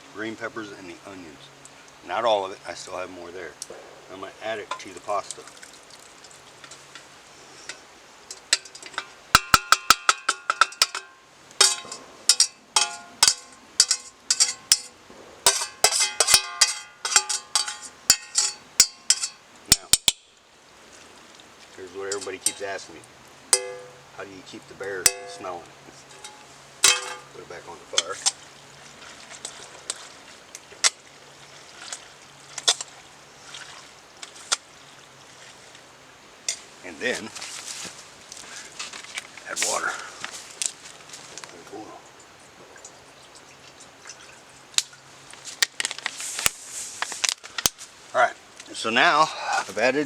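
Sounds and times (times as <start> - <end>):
metal spoon clanking against pot: 7.6 - 20.2, 23.5 - 24.1, 25.0 - 27.4.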